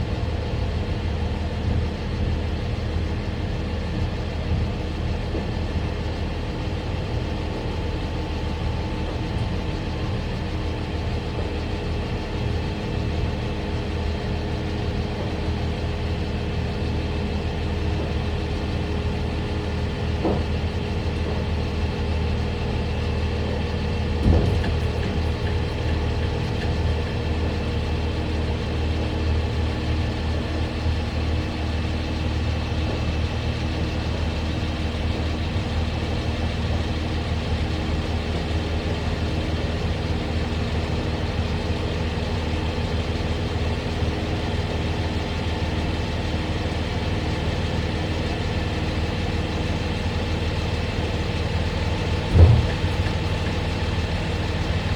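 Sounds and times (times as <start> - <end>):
truck engine running: 0.0 - 54.9
knock: 52.3 - 53.1.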